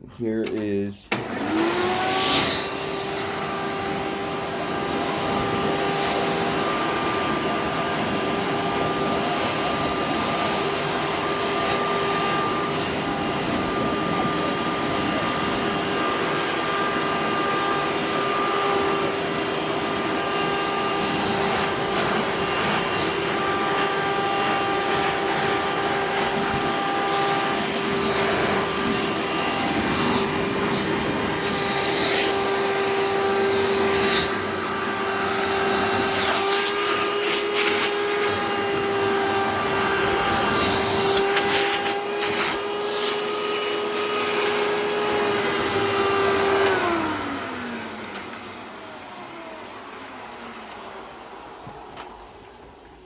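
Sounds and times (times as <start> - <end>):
vacuum cleaner motor running: 1.1 - 53.0.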